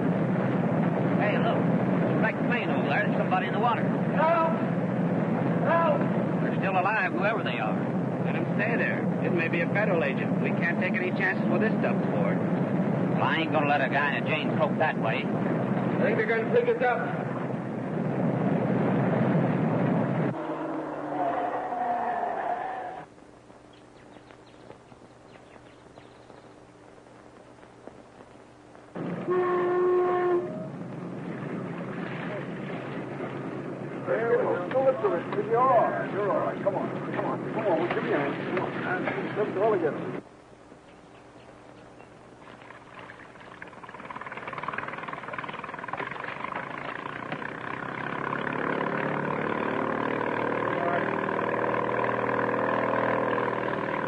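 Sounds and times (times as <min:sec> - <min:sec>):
motorboat engine running: 0:00.0 - 0:20.7, 0:28.7 - 0:40.2, 0:41.8 - 0:54.0
loud horn-like tone: 0:20.3 - 0:23.0, 0:29.2 - 0:30.8.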